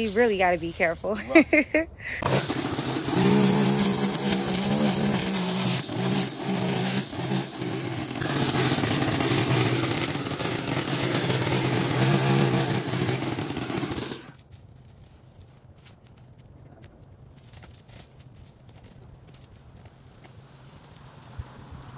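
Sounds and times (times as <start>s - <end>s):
riding mower engine cutting grass: 2.2s - 14.4s.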